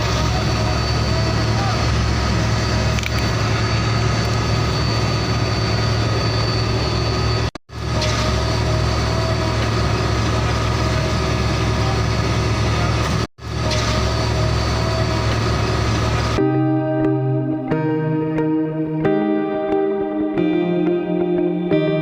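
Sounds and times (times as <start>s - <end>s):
truck engine idling: 0.0s - 16.4s.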